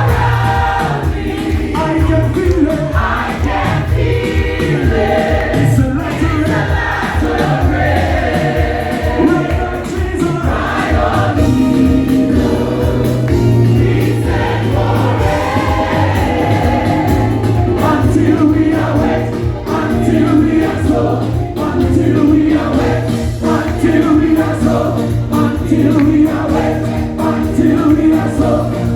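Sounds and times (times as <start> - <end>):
choir singing gospel: 0.0 - 28.9
low bass: 11.3 - 28.9.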